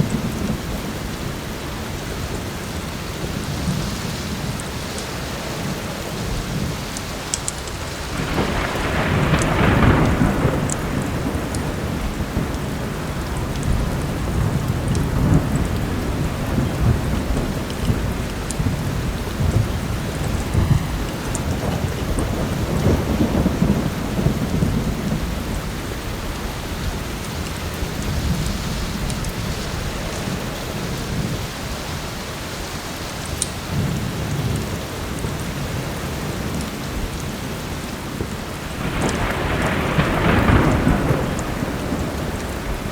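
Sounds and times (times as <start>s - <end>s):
heavy rain: 0.0s - 42.9s
wood fire crackling: 4.4s - 23.7s
thunder rolling: 7.6s - 31.6s, 38.2s - 42.9s.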